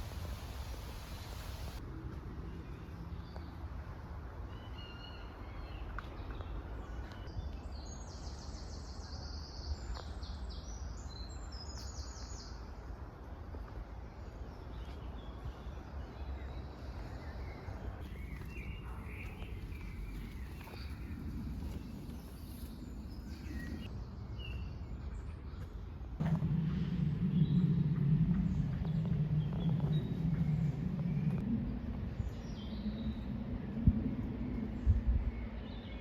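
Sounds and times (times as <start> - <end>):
woodland birds singing: 4.4 - 13.0, 13.8 - 25.9, 32.1 - 33.4
wind rumble on microphone: 5.5 - 36.0.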